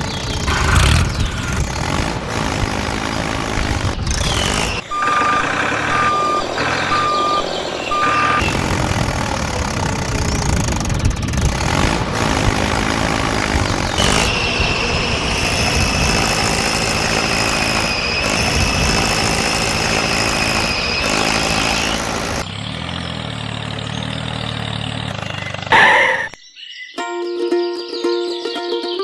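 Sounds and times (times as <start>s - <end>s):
plucked-string background music: 27.0s - 29.0s.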